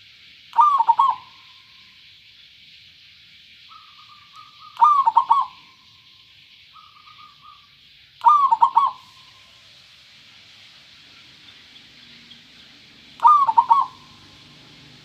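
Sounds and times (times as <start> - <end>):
faint steady hiss: 0.0 - 15.0
dove cooing: 0.6 - 1.4, 4.4 - 5.6, 8.2 - 9.2, 13.2 - 14.4.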